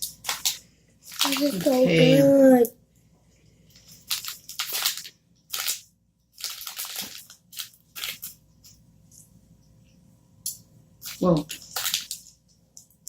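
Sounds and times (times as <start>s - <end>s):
crunching and chewing chocolate: 6.4s - 8.3s.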